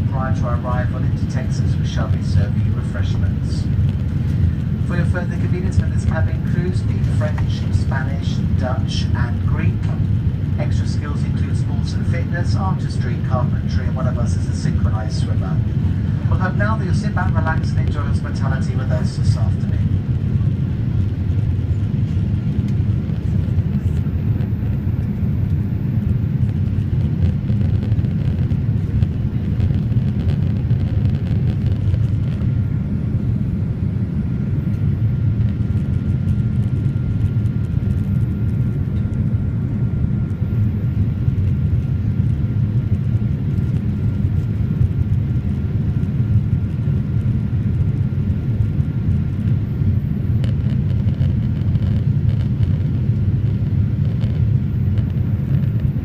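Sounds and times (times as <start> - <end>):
aircraft cabin engine rumble: 0.0 - 56.0.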